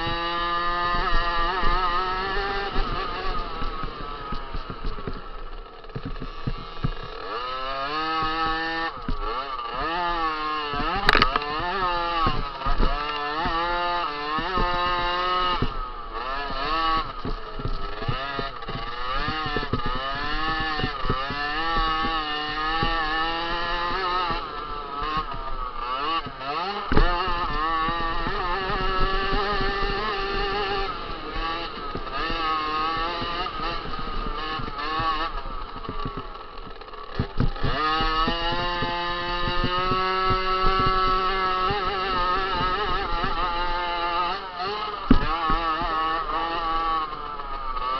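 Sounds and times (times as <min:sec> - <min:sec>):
two-stroke motocross engine revving: 0:00.0 - 0:47.9
sharp click: 0:11.0 - 0:11.5.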